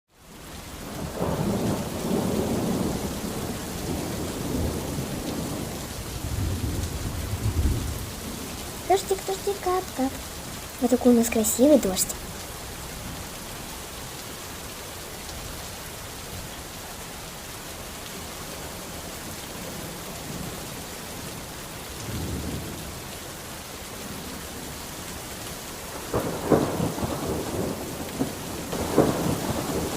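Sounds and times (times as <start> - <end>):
steady rain: 0.1 - 29.9
thunder rumbling: 0.9 - 12.3, 22.0 - 23.1, 25.9 - 29.9
sharp thunderclap: 1.0 - 8.5, 22.0 - 22.8, 26.0 - 29.9.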